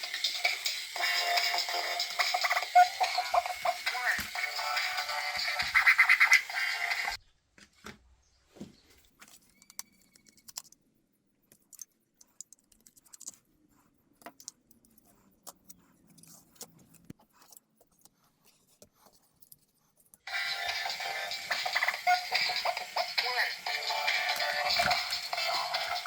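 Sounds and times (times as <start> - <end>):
music: 0.0 - 7.2, 20.3 - 26.0
plastic parts clicking and rattling: 9.0 - 13.5.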